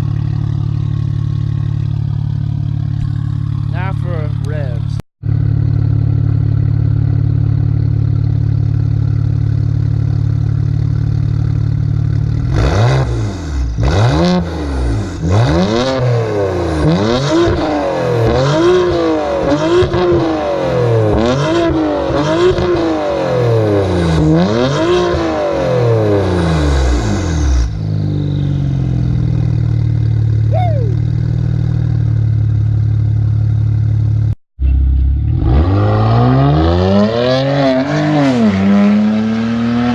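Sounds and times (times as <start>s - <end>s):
exhaust pops and crackles: 0.0s - 5.0s
car engine idling and revving: 0.0s - 39.9s.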